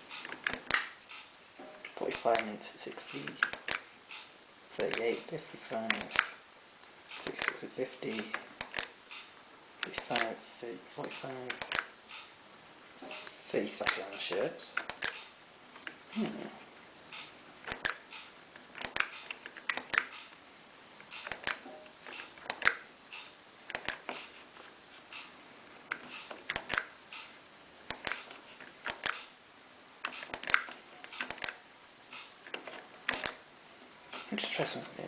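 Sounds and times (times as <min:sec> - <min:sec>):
washing machine control clicks: 0:07.1 - 0:10.3, 0:11.0 - 0:12.3, 0:17.1 - 0:20.3, 0:21.0 - 0:24.3, 0:25.9 - 0:27.3, 0:27.9 - 0:29.3, 0:30.0 - 0:33.4.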